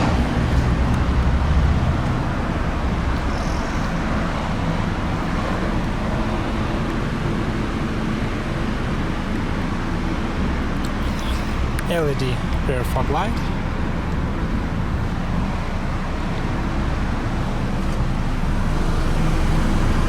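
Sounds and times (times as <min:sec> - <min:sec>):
motor vehicle rumble: 0:00.0 - 0:20.0.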